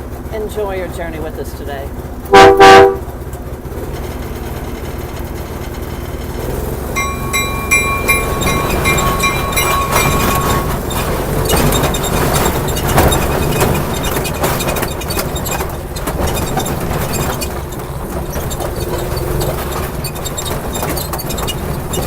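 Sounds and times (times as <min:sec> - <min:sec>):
train rumbling: 0:00.0 - 0:22.0
wheels clicking on track: 0:00.0 - 0:22.0
bell ringing rapidly: 0:07.0 - 0:12.0.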